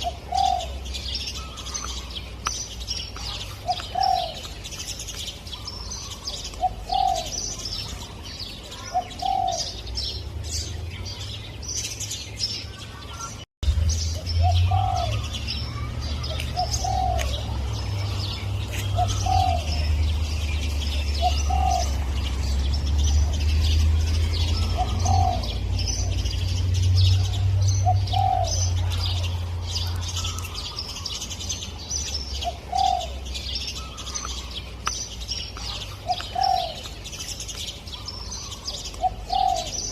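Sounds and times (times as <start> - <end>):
dove cooing: 0.0 - 2.0, 3.2 - 4.5, 5.6 - 8.0, 8.7 - 9.9, 14.4 - 19.9, 20.9 - 22.6, 24.4 - 26.2, 27.2 - 30.7, 32.4 - 34.5, 35.6 - 37.0, 38.0 - 39.9
small birds chirping: 0.0 - 39.9.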